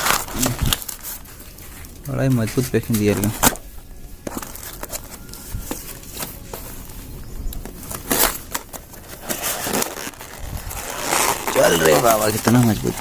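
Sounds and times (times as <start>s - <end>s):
packaging being torn open: 0.0s - 1.3s, 7.9s - 13.0s.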